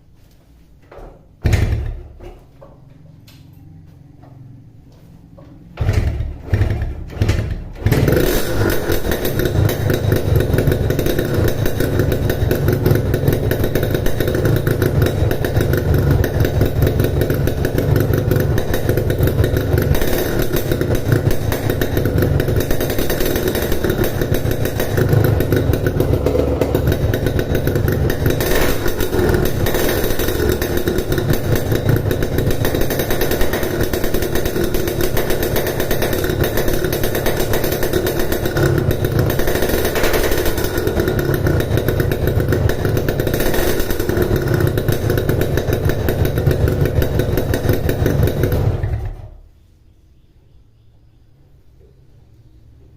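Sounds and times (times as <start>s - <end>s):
two-stroke motorcycle engine idling: 5.4s - 49.4s.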